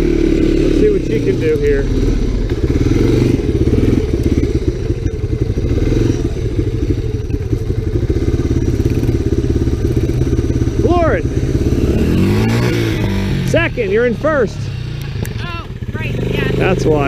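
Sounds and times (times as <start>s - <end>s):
three-wheeler engine running: 0.0s - 17.0s.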